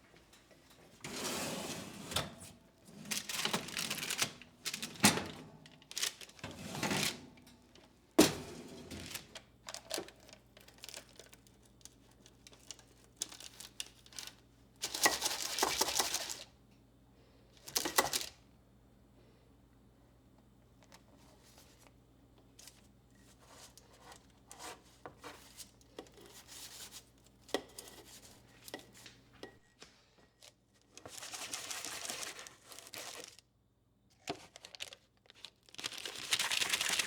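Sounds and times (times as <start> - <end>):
rustling of objects handled: 2.4 - 16.5, 22.6 - 33.4.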